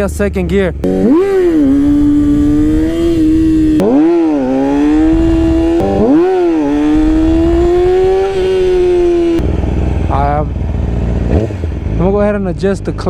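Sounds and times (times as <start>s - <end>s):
low wind rumble: 0.0s - 13.0s
motorcycle engine revving: 0.0s - 13.0s.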